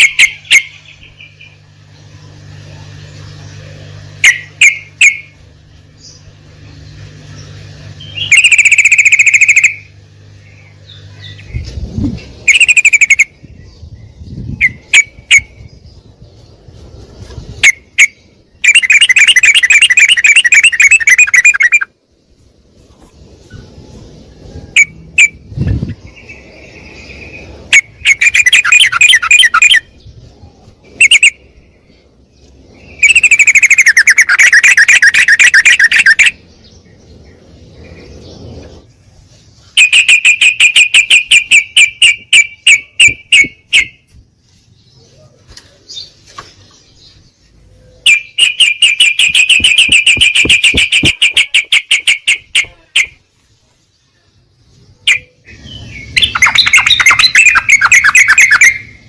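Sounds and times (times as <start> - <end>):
bird chip notes: 0.0 - 16.5, 17.3 - 22.0, 24.6 - 36.6, 47.9 - 53.3, 55.1 - 59.0
bird bubbling chatter: 8.0 - 9.9, 11.0 - 13.5, 17.6 - 21.9, 27.7 - 29.9, 32.8 - 36.4, 48.0 - 53.2, 55.1 - 58.9
low thumps: 49.2 - 51.4.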